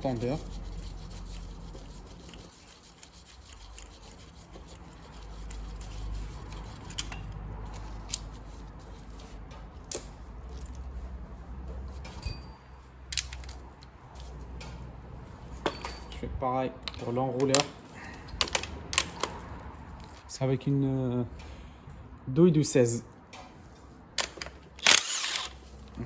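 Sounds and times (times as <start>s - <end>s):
ratchet clicking rapidly: 24.2s - 25.6s.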